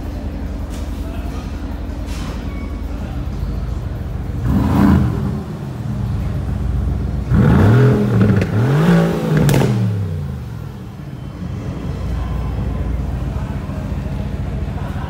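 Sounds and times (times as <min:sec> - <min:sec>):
exhaust crack: 0:04.0 - 0:10.6
car engine revving: 0:04.0 - 0:14.8.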